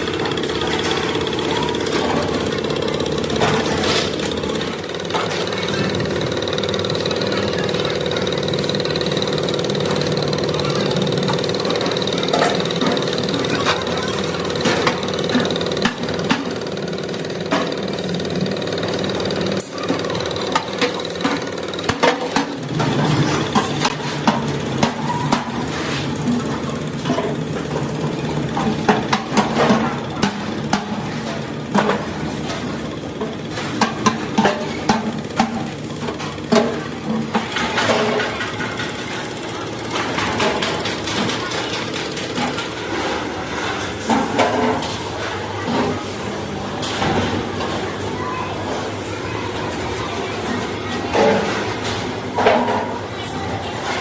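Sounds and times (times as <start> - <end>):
machinery humming: 0.0 - 54.0.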